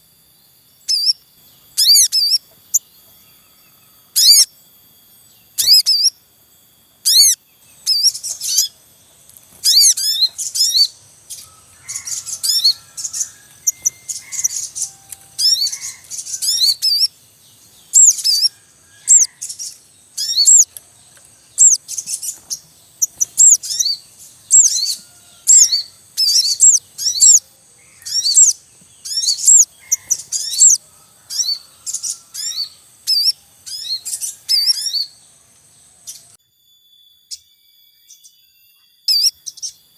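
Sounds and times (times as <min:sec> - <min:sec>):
bird high-pitched chirps: 0:00.0 - 0:04.6, 0:05.2 - 0:36.4, 0:37.1 - 0:39.9
faint chick calls: 0:09.5 - 0:35.2.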